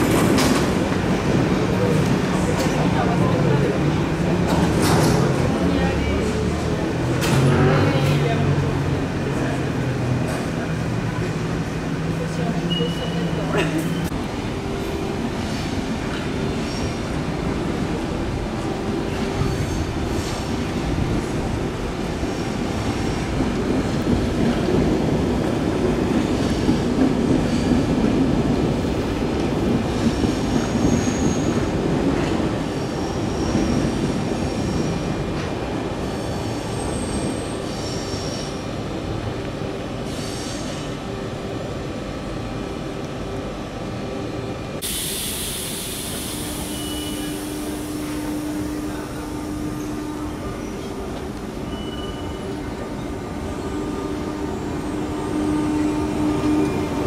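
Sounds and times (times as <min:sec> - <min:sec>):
electric train rumbling over points: 0:00.0 - 0:57.0
steady high hiss of train: 0:05.8 - 0:57.0
train wheel squeals: 0:12.7 - 0:14.1, 0:29.9 - 0:35.1, 0:36.0 - 0:38.6, 0:40.1 - 0:40.9, 0:45.8 - 0:53.1.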